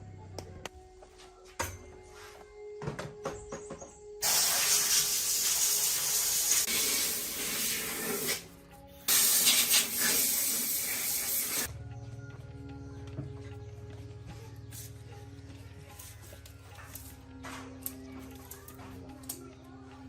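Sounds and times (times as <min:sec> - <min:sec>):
compressed air spraying: 0:04.2 - 0:11.7.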